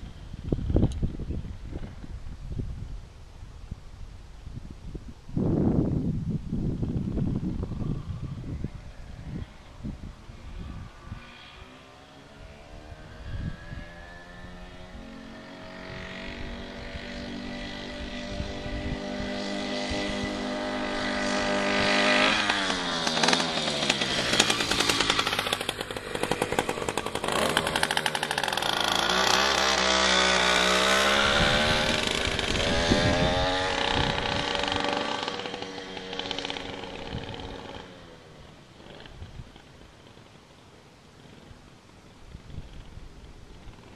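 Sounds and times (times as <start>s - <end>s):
two-stroke bicycle engine running: 13.2s - 43.9s.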